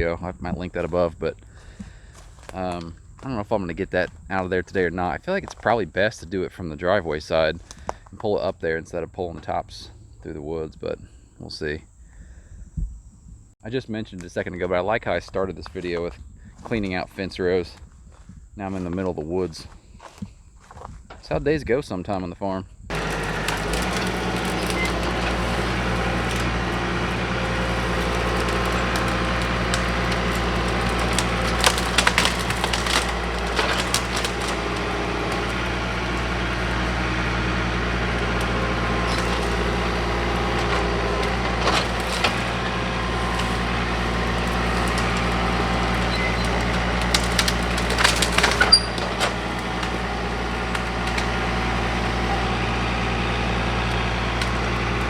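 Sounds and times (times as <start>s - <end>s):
tractor diesel engine running: 22.9s - 55.0s
wood cracking and splintering: 22.9s - 55.0s.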